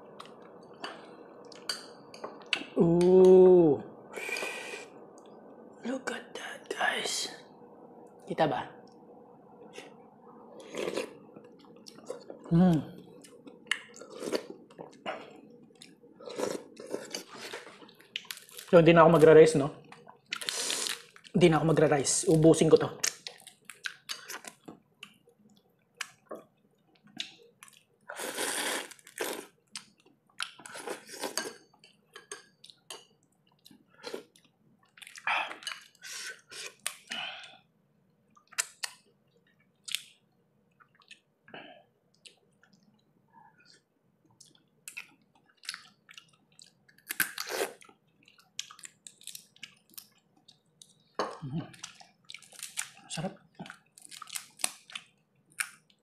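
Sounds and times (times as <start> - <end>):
chewing and mouth sounds: 10.6 - 18.7, 23.0 - 28.0, 28.8 - 37.6, 38.3 - 43.0, 43.6 - 56.0
slurping: 28.1 - 29.5.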